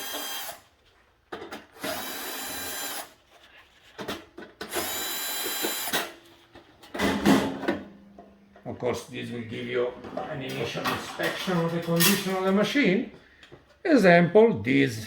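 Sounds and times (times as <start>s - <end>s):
power screwdriver whirring: 0.0s - 0.7s, 1.7s - 3.2s, 4.6s - 6.2s.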